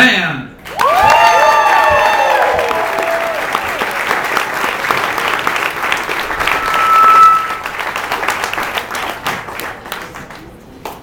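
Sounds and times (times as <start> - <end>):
crowd applauding: 0.6 - 10.6
steady high tone: 6.0 - 8.4.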